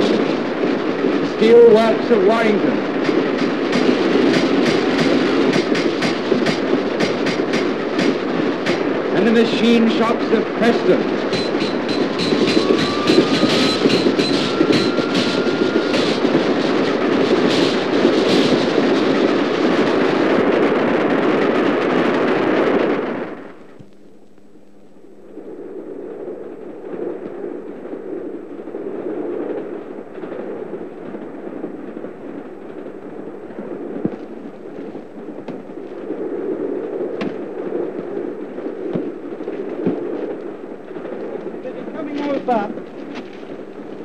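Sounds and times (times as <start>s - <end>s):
train passing at speed: 0.0s - 21.2s
train rumble and rattle: 0.0s - 23.8s, 37.2s - 44.0s.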